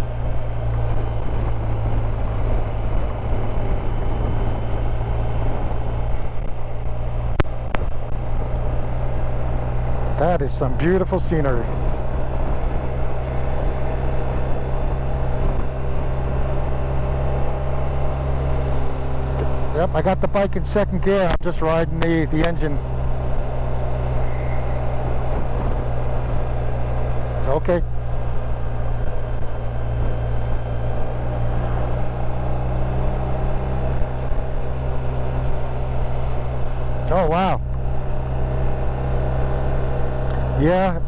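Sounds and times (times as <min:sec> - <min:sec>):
motorcycle engine braking: 0:22.3 - 0:40.9.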